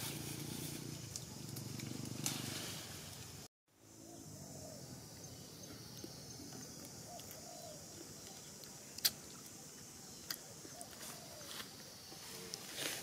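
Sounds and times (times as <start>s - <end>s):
steady background hiss: 0.0s - 13.0s
faint bird calls: 4.0s - 8.6s, 10.1s - 12.8s.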